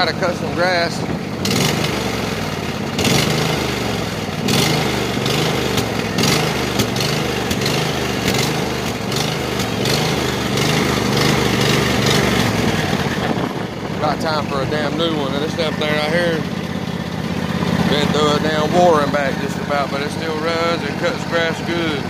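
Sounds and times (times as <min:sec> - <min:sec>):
lawn mower engine running: 0:00.0 - 0:22.0
wind buffeting microphone: 0:12.4 - 0:16.2.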